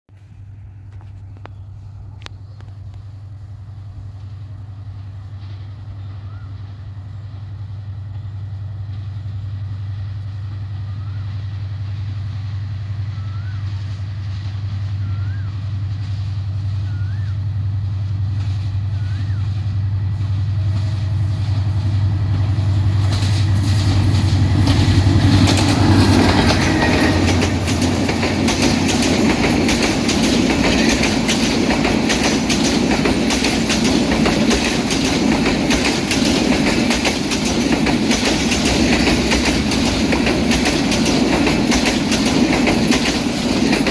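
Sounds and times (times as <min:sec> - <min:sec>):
diesel train engine drone: 0:00.1 - 0:43.9
train wheels clattering over rail joints: 0:20.5 - 0:43.9.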